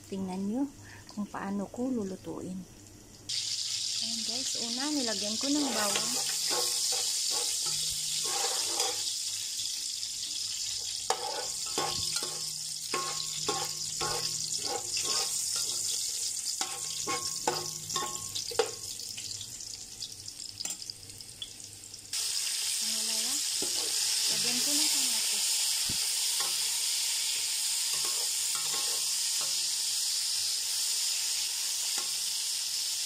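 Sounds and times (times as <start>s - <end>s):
garlic sizzling in oil: 2.7s - 33.0s
metal spatula scraping a pot: 5.6s - 9.1s, 11.0s - 18.7s, 23.6s - 24.0s, 27.9s - 29.6s.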